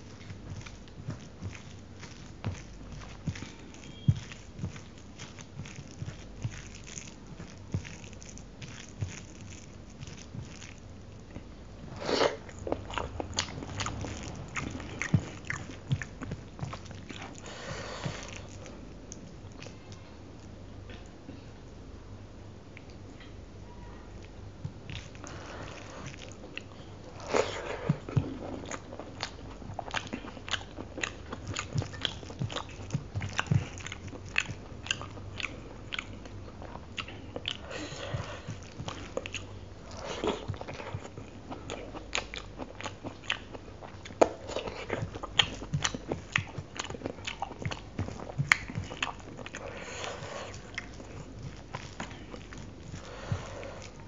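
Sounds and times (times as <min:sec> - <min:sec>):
chewing with wet mouth clicks: 0:00.0 - 0:11.5, 0:12.3 - 0:21.1, 0:24.2 - 0:54.0
soft squishing of rice by fingers: 0:00.0 - 0:21.6, 0:24.0 - 0:54.0.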